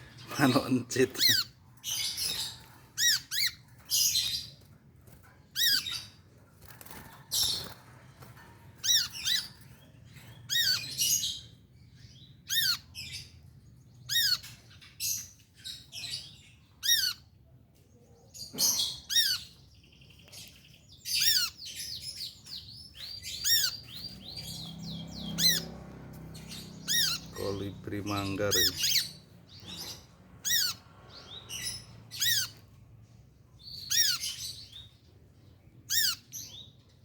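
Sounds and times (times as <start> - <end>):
sunbird chirping: 18.9 - 36.8.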